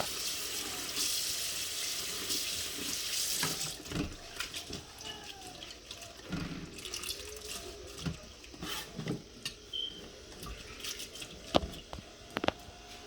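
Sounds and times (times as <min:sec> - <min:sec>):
water running from a tap: 0:00.0 - 0:08.6.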